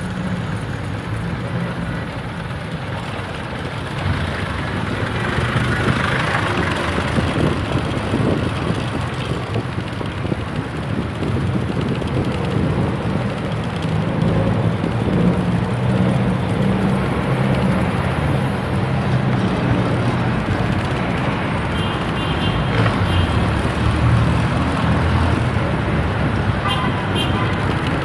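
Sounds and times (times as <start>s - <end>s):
passing cars: 0.0s - 28.0s
wind on microphone: 5.2s - 13.6s.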